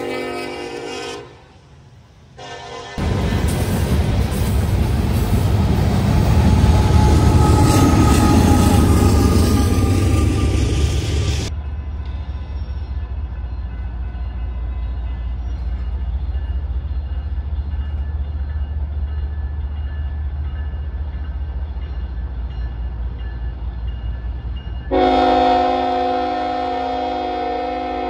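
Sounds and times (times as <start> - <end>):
locomotive air horn: 0.0 - 1.6, 2.4 - 3.2, 24.9 - 28.0
train rumbling: 0.0 - 28.0.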